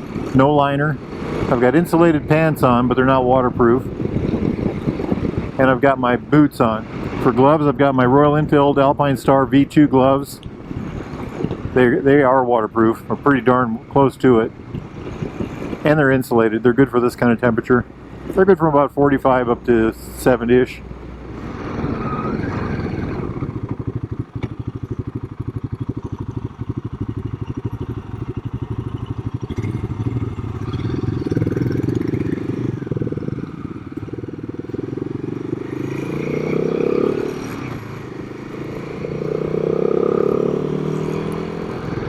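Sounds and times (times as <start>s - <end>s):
motorcycle engine running: 22.8s - 42.0s.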